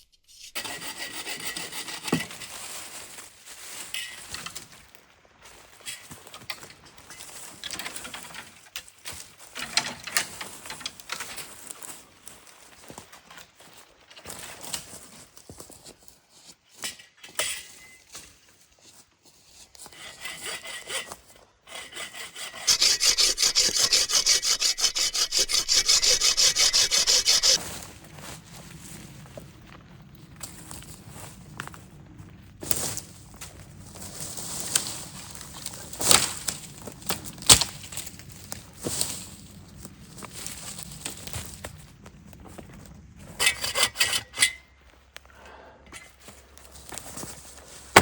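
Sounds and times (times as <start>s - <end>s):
hand saw cutting wood: 0.4s - 2.5s, 19.8s - 27.6s, 43.4s - 44.6s.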